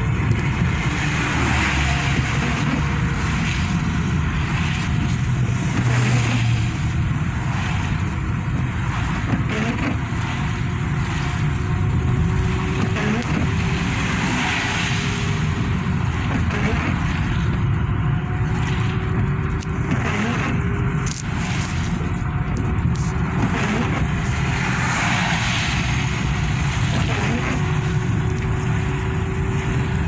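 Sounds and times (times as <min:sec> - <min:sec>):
car engine and road rumble: 0:00.0 - 0:30.0
tyres hissing on wet road: 0:12.6 - 0:16.0, 0:24.2 - 0:29.9.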